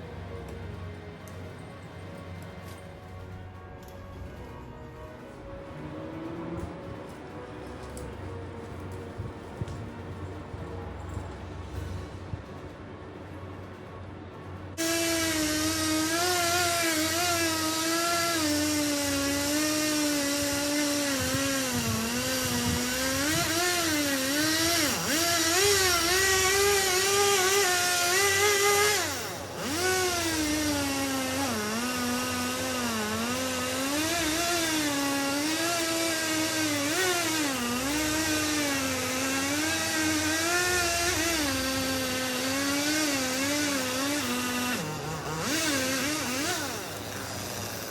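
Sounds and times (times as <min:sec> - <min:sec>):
chainsaw cutting at high speed: 0:14.8 - 0:47.9.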